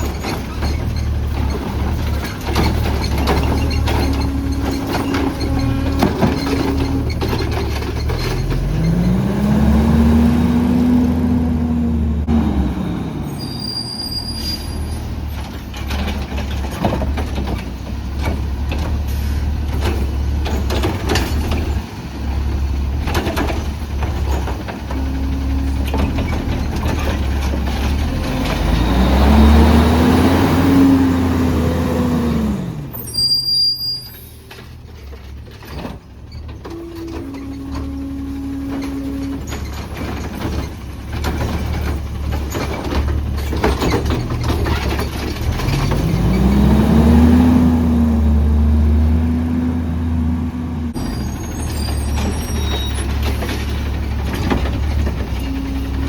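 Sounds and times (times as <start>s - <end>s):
garbage truck engine running: 0.0s - 13.7s, 15.0s - 33.1s, 34.2s - 56.0s
metal clanks and clicks: 38.7s - 46.4s.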